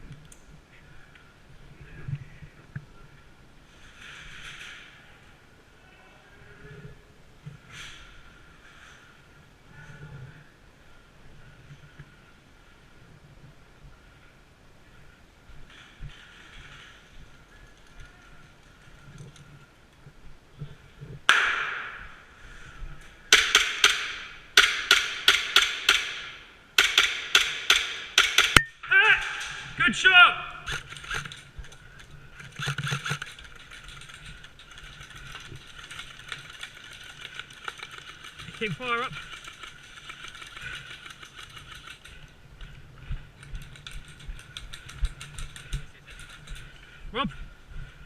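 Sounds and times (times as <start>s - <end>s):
airsoft gunshots with echo: 21.3s - 22.2s, 23.3s - 28.6s.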